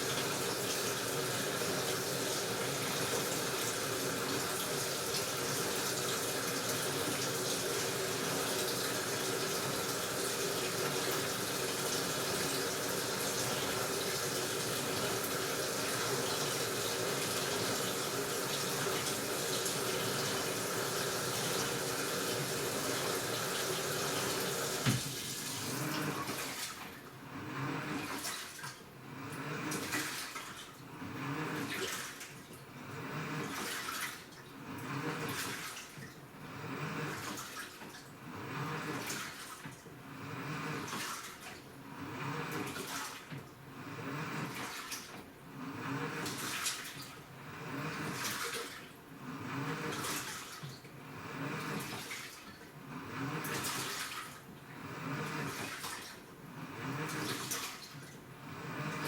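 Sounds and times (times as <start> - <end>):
water rushing into drum: 0.0 - 26.8
faint machine hum: 0.0 - 59.0.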